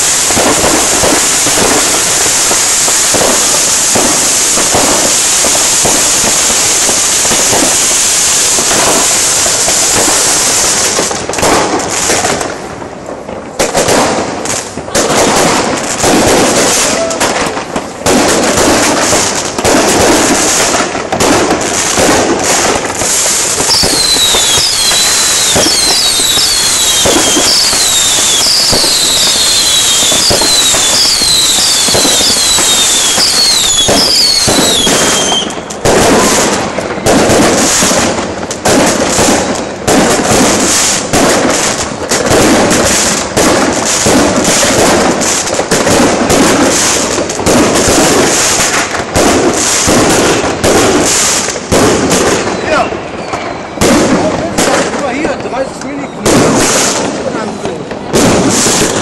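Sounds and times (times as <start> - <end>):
firecracker bangs and crackling: 0.0 - 59.0
falling firework whistles: 18.3 - 54.8, 58.2 - 59.0.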